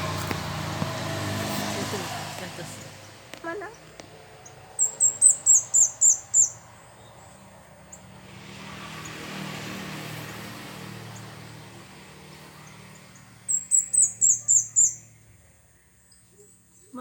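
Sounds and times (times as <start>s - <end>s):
bird chirping high: 2.7s - 8.2s, 12.5s - 17.0s.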